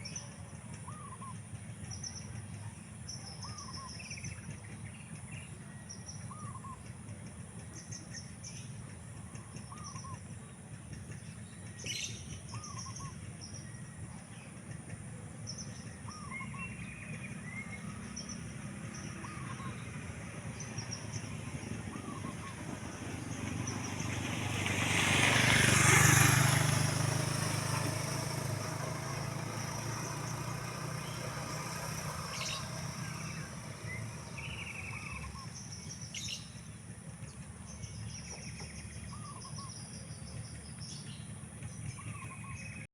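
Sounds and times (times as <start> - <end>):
motor vehicle passing: 0.0 - 42.9
high bird chirps: 27.3 - 36.7.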